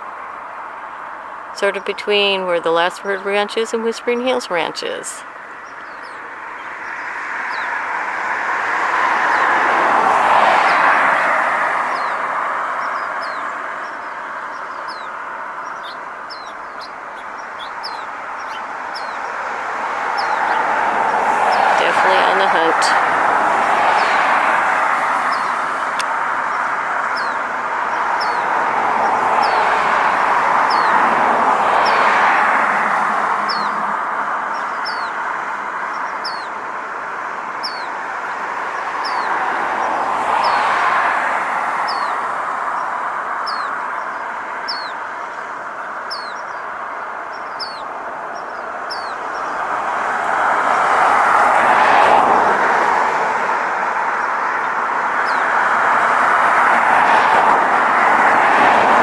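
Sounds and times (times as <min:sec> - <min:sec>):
road traffic passing: 0:00.0 - 0:59.0
small bird chirping: 0:12.8 - 0:19.4, 0:20.1 - 0:20.7, 0:26.5 - 0:29.6, 0:30.6 - 0:31.0, 0:33.5 - 0:33.7, 0:34.5 - 0:35.2, 0:35.9 - 0:36.6, 0:37.6 - 0:38.0, 0:39.0 - 0:39.4, 0:41.9 - 0:42.2, 0:42.8 - 0:45.0, 0:45.8 - 0:46.7, 0:47.3 - 0:49.6, 0:55.2 - 0:55.5.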